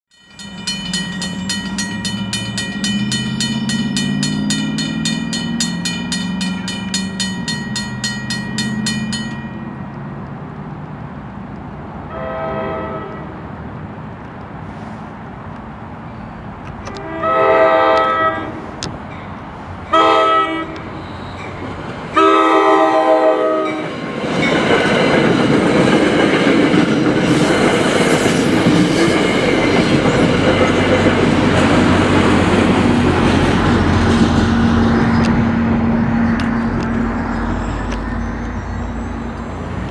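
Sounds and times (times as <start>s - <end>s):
bell ringing rapidly: 0.1s - 9.9s
train passing with rail clatter: 0.1s - 39.9s
train horn blasts: 12.1s - 13.3s, 16.9s - 18.6s, 19.9s - 21.4s, 22.2s - 23.9s.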